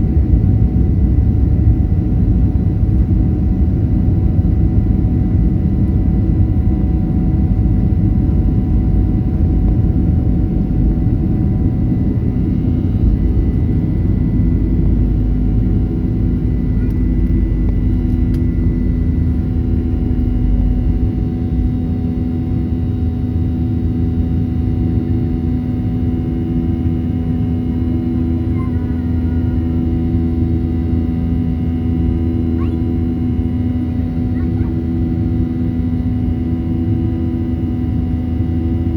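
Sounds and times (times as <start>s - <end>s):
wheels rumbling on runway: 0.0s - 23.4s
jet engines whining: 0.0s - 38.9s.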